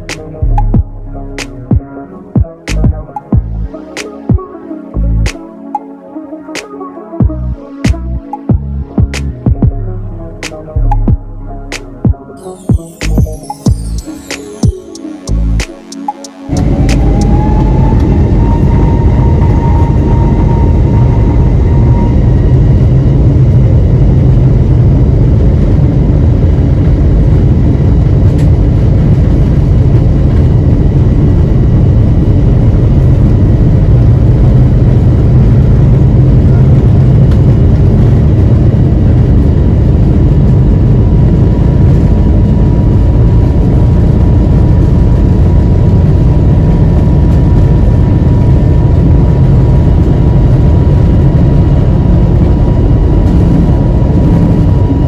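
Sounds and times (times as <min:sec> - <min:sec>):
faint steady whine: 0:12.6 - 0:55.0
jet engine cabin rumble: 0:16.5 - 0:55.0.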